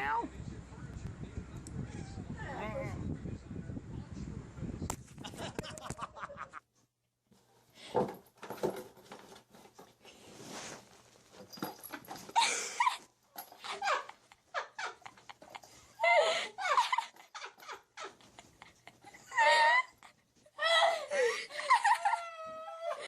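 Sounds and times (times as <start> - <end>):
knocks and rustling: 7.4 - 12.4.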